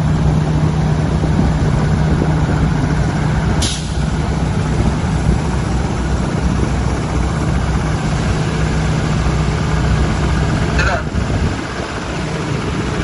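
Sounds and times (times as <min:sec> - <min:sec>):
truck engine humming: 0:00.0 - 0:13.0
air brake hiss: 0:03.6 - 0:04.0.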